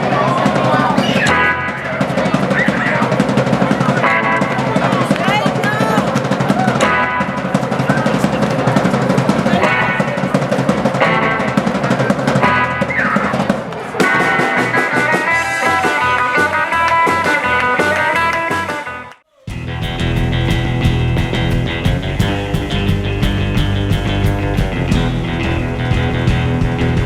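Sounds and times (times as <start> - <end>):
drums: 0.0 - 27.0
live rockabilly band: 0.0 - 27.0
electric guitar: 1.2 - 27.0.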